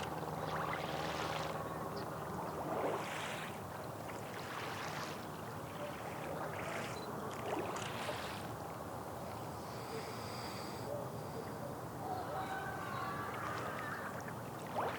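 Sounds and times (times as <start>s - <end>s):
small waves lapping: 0.0s - 14.9s.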